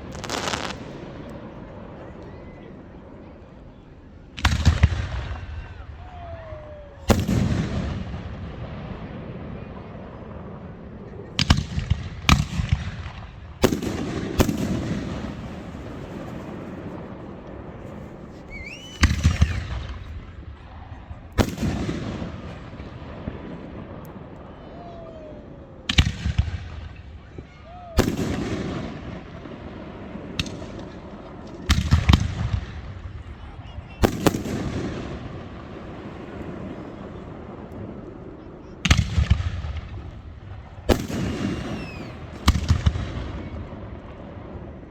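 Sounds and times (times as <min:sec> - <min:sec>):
rising firework whistle: 0:00.0 - 0:01.3, 0:14.4 - 0:20.2, 0:24.4 - 0:30.6, 0:40.8 - 0:43.8
fireworks bangs with echo: 0:00.0 - 0:02.4, 0:04.2 - 0:44.9.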